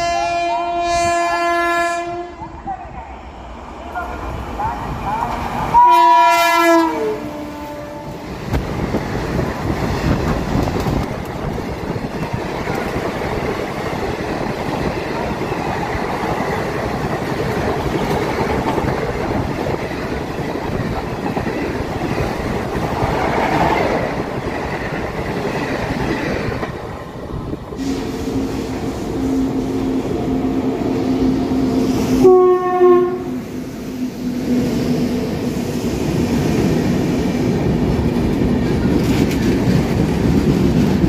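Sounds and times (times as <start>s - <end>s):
train coaches rumbling past: 0.0s - 41.0s
wheels clacking over rail joints: 8.4s - 27.0s.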